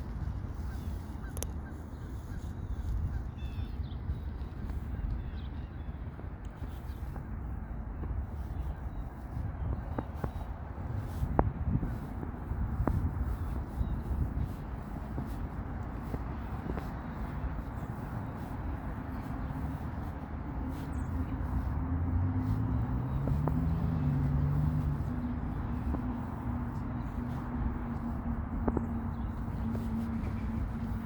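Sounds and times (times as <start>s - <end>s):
traffic rumble: 0.0s - 31.0s
motor vehicle passing: 10.2s - 31.0s.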